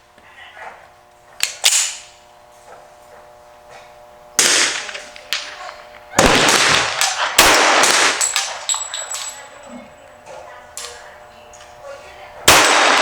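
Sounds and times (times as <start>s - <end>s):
faint sharp cracks: 1.4s - 2.2s, 4.4s - 8.8s
loud pistol shots: 4.4s - 5.4s, 6.2s - 8.7s, 12.5s - 13.0s.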